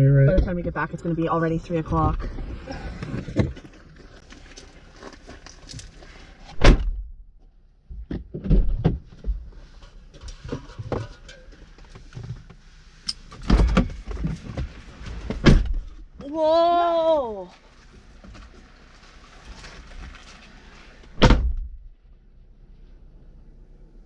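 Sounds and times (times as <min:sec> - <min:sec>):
knocks and heavy thumps: 0:07.9 - 0:09.5, 0:13.4 - 0:16.0, 0:21.1 - 0:21.8.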